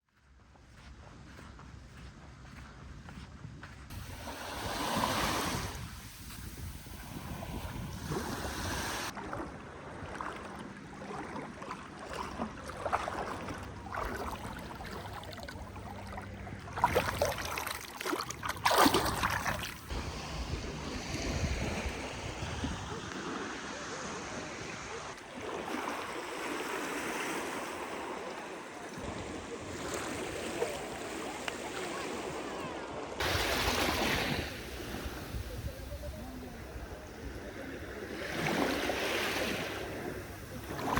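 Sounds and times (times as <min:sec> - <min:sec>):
sea waves on sandy shore: 0:03.9 - 0:40.9
faint voices: 0:27.9 - 0:40.9.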